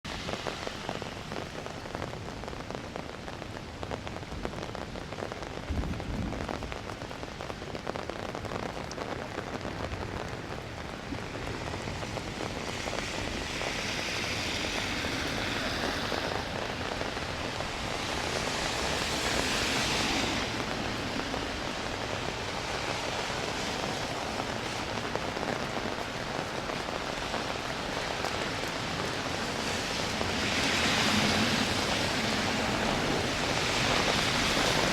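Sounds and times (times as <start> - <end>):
rain pattering on street: 0.1 - 34.9.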